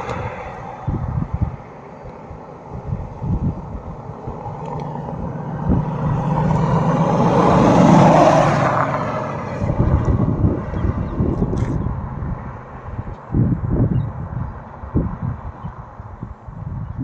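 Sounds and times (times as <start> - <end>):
vehicle driving past: 3.1 - 11.3.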